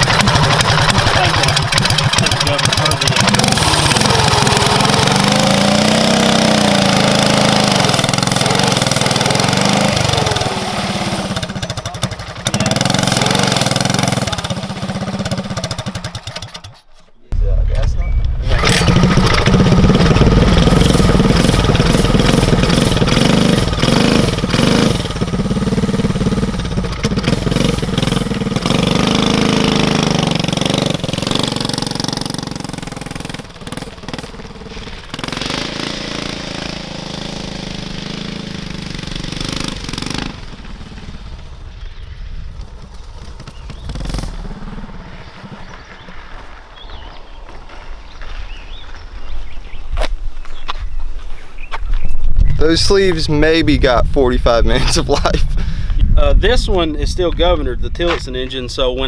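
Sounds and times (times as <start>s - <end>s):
small go-kart engine running hard: 0.0s - 16.8s, 18.5s - 46.0s.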